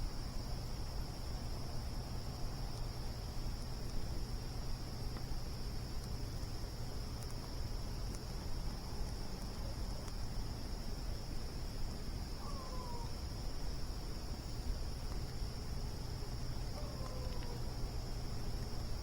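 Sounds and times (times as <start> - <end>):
campfire crackling: 0.0 - 19.0
crickets chirping: 0.0 - 19.0.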